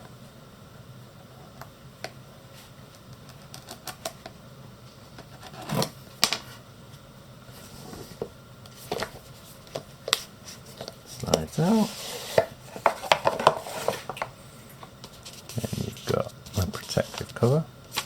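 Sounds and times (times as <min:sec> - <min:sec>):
cardboard scrape: 0:10.5 - 0:14.2.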